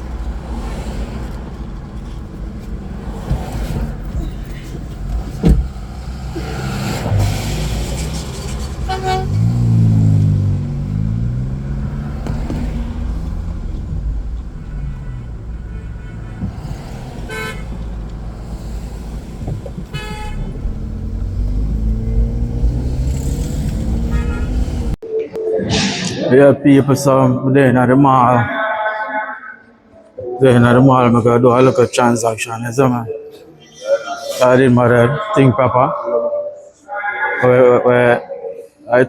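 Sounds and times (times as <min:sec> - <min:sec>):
low rumble of vehicle running: 0:00.0 - 0:25.0
car horns tooting: 0:04.2 - 0:25.0
engine revving: 0:05.1 - 0:25.0.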